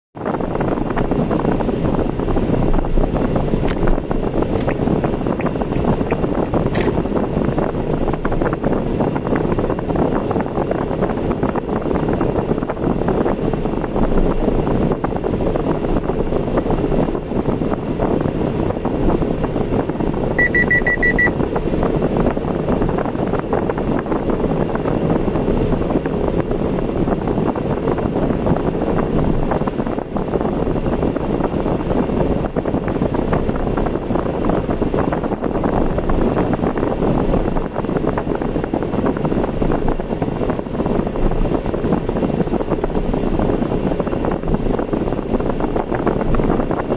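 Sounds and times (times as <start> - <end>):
car road noise: 0.2 - 46.9
high electronic beeps: 20.4 - 21.4.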